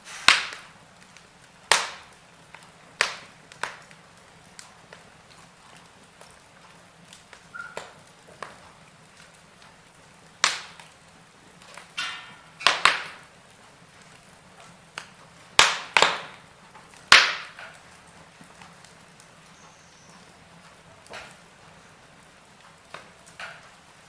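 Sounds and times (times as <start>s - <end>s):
brief hiss: 0.0s - 0.4s
wood fire crackling: 0.0s - 24.0s.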